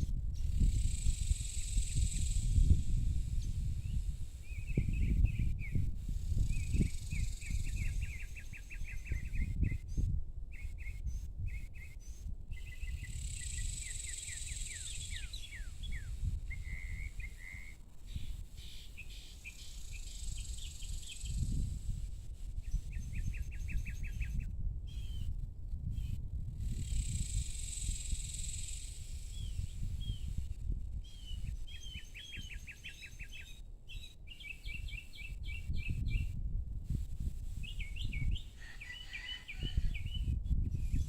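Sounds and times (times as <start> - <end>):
small birds chirping: 11.6 - 21.9, 26.0 - 36.4.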